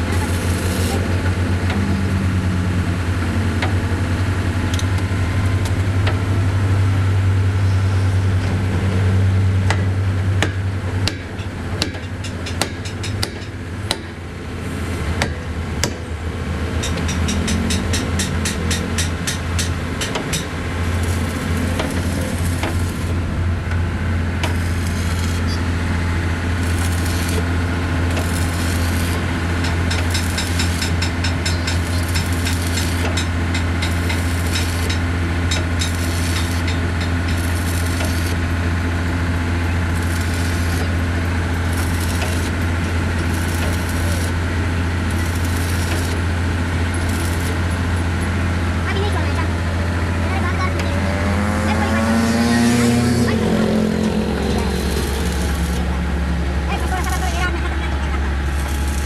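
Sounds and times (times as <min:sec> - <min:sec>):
machine humming: 0:16.4 - 0:59.0.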